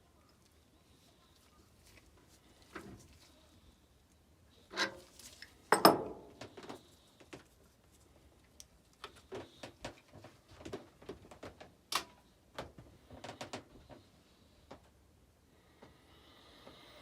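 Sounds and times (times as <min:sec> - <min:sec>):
tools and metal parts knocking: 0:05.8 - 0:06.4.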